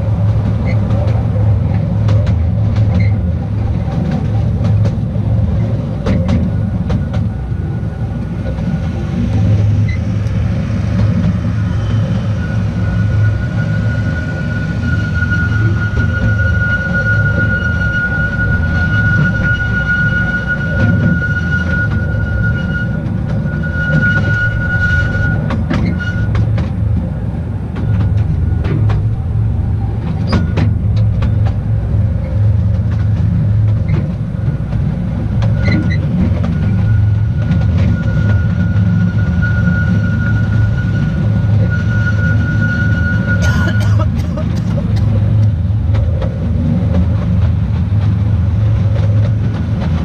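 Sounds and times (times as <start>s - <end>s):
train wheels rumbling: 0.0s - 50.0s
high whine or squeal: 6.5s - 44.7s.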